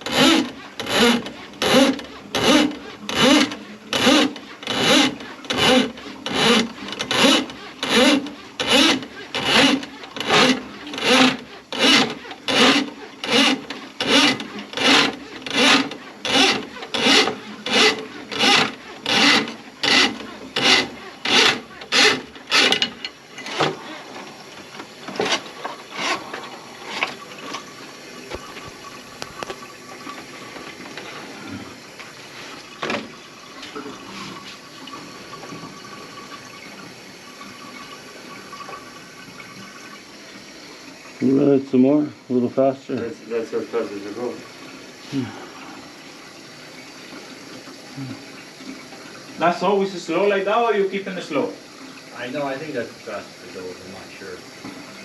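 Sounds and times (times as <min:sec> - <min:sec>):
tool rubbing in sink drain: 0:00.0 - 0:29.5.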